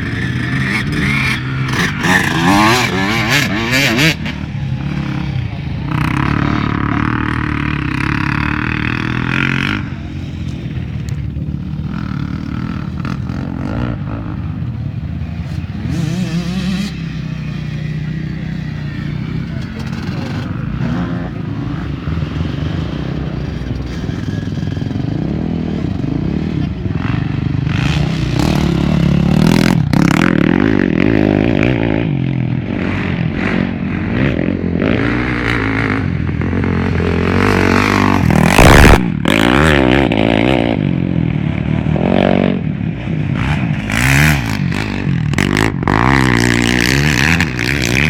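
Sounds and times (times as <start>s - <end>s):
motocross engines revving: 0.0s - 48.0s
loud rush of noise: 35.6s - 46.5s.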